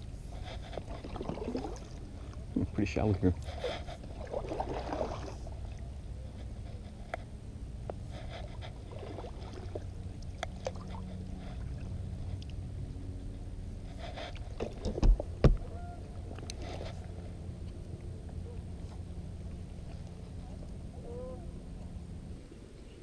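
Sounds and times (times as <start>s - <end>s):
low rumble: 0.0s - 23.0s
water splashing: 0.5s - 5.9s, 8.4s - 12.4s
kayak knocking: 14.6s - 15.7s.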